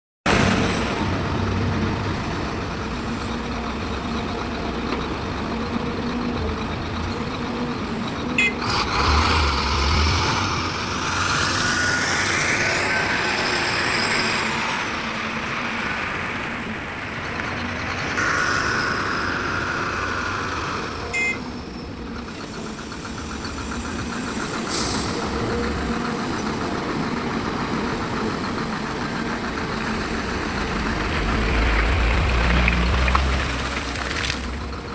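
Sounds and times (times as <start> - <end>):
heavy diesel machinery running: 0.3 - 34.9
loud hissing: 8.9 - 15.0
machine whine: 9.4 - 16.0, 17.0 - 26.5.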